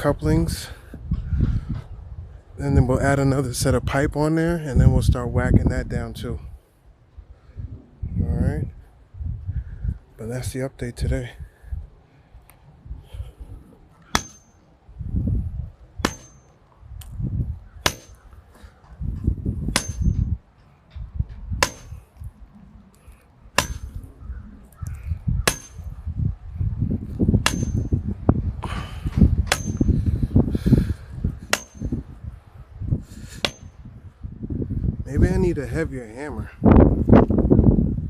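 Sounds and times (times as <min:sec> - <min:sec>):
wind rumbling on microphone: 0:00.0 - 0:38.0
sledgehammer clanging on metal pipe: 0:14.1 - 0:14.7, 0:16.0 - 0:16.6, 0:17.8 - 0:18.3, 0:19.7 - 0:20.4, 0:21.6 - 0:22.1, 0:23.6 - 0:24.0, 0:25.4 - 0:26.0, 0:27.4 - 0:28.0, 0:29.5 - 0:30.1, 0:31.4 - 0:32.0, 0:33.4 - 0:33.8.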